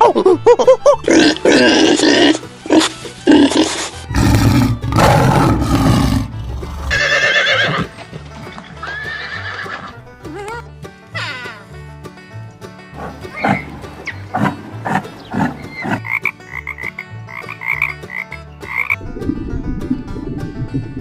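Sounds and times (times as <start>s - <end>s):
background music: 0.0s - 21.0s
horse neighing: 4.1s - 7.9s, 8.8s - 9.9s
farm animal calls: 13.0s - 19.0s.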